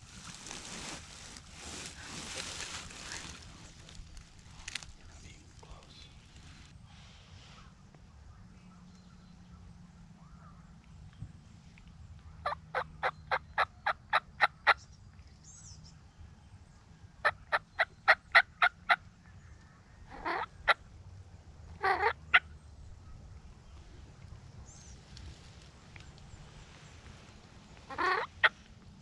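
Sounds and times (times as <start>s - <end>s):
turkey yelps: 12.4s - 14.8s, 20.0s - 20.8s, 21.8s - 23.2s, 27.9s - 28.6s
turkey gobbles: 20.0s - 20.8s, 21.8s - 23.2s, 27.7s - 28.6s.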